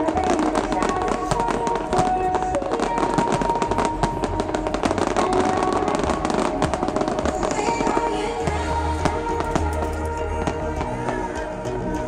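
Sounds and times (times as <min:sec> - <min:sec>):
fireworks popping and crackling: 0:00.0 - 0:10.3
electronic dance music: 0:08.6 - 0:10.2.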